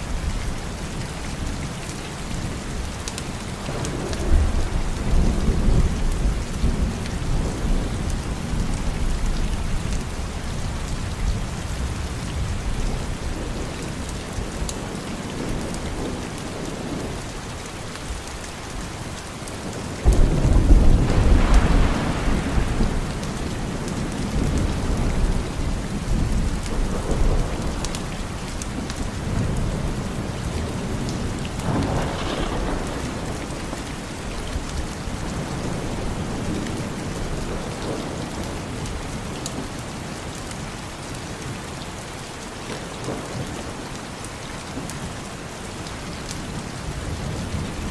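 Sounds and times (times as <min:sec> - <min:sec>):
steady rain: 0:00.0 - 0:47.9
thunder rumbling: 0:03.6 - 0:17.3, 0:20.0 - 0:39.4.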